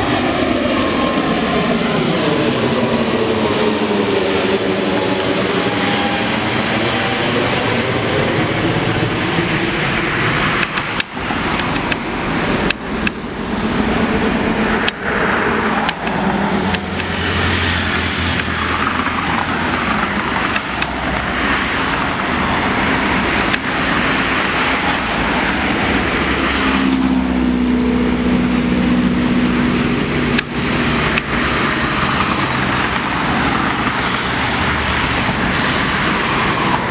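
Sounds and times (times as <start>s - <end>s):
jet engines roaring: 0.0s - 36.9s
sharp clicks: 10.6s - 13.2s, 15.8s - 17.2s, 20.5s - 21.0s.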